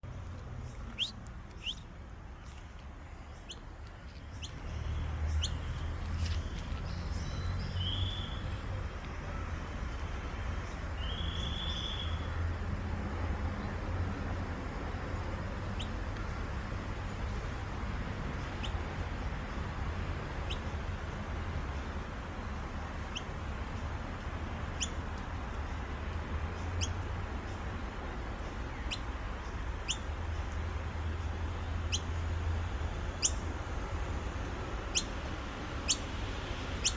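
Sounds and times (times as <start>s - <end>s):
bird fledgling chirping: 0.6s - 1.8s, 3.0s - 8.4s, 20.4s - 21.2s, 23.0s - 23.8s, 24.7s - 26.0s, 26.6s - 27.0s, 28.4s - 32.2s, 33.1s - 33.4s, 34.8s - 36.9s.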